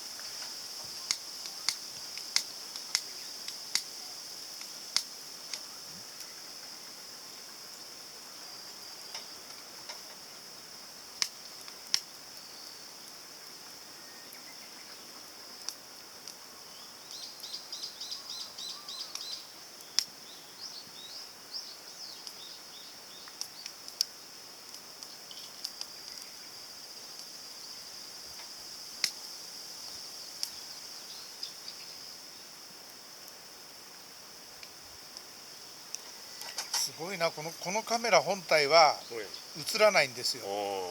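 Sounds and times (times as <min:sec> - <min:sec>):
high insect drone: 0:00.0 - 0:40.9
bird chirping: 0:16.7 - 0:23.7.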